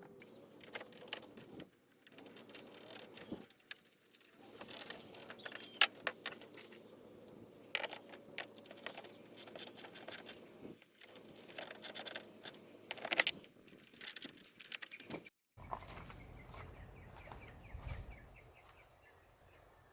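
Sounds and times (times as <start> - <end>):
small metal parts clinking: 0.2 - 15.2.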